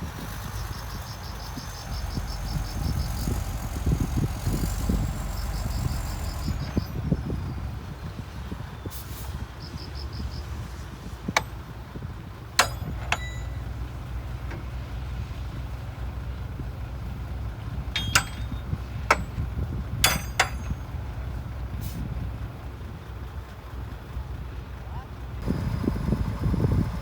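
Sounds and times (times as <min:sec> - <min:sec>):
bulldozer diesel engine rumble: 0:00.0 - 0:27.0
sharp metallic clanks: 0:12.6 - 0:14.7, 0:17.9 - 0:21.1.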